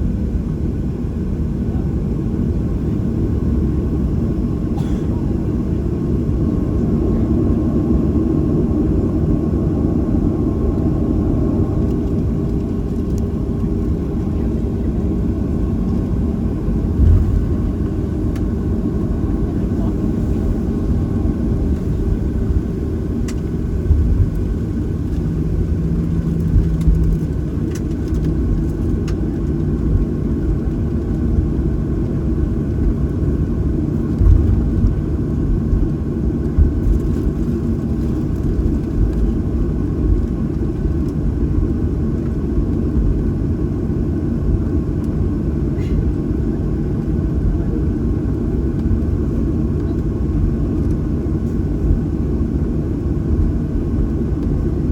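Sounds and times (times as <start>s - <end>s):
airplane cabin rumble: 0.0s - 54.9s
steady hum: 11.0s - 30.6s.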